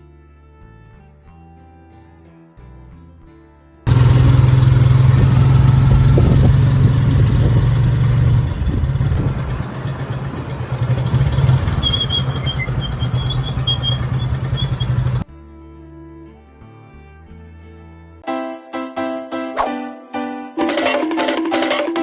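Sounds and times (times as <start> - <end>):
vehicle engine humming: 3.9 - 15.2.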